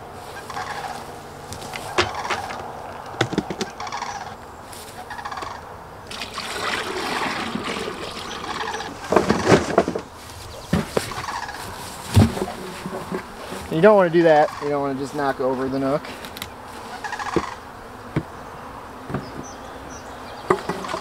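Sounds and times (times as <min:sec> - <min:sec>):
wavering bird calls: 0:00.2 - 0:05.8, 0:07.8 - 0:15.3, 0:16.2 - 0:21.0
knocks and thumps of gear: 0:01.5 - 0:03.7, 0:12.1 - 0:13.7.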